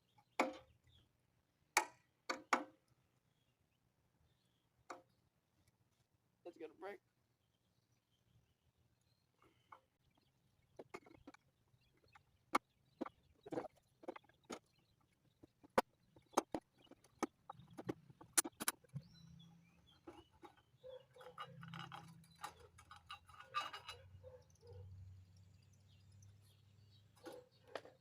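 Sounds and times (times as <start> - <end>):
soft rattling and handling: 9.4 - 12.2, 20.0 - 24.8.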